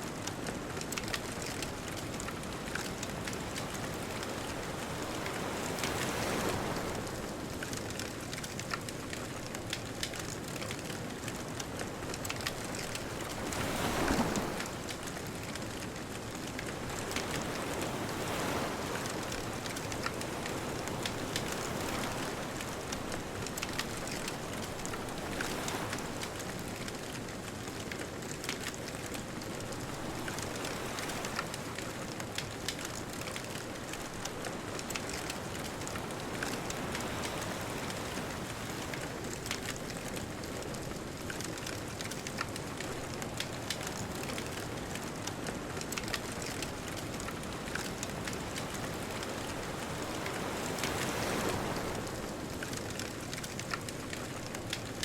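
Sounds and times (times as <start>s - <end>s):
bonfire crackling: 0.1s - 6.7s, 7.3s - 30.0s, 30.6s - 55.0s
distant ocean surf: 12.3s - 28.7s, 29.3s - 54.8s.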